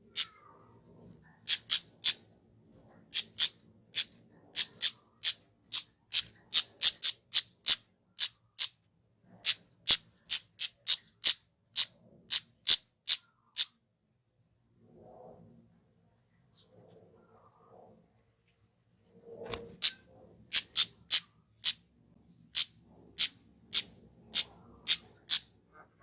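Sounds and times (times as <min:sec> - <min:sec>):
bird calling sharp high notes: 0:20.6 - 0:21.8.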